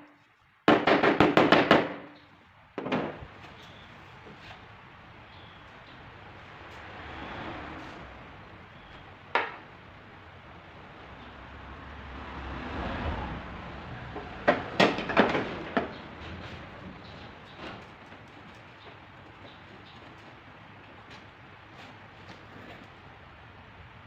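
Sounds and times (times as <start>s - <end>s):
vehicle passing: 5.7s - 18.4s.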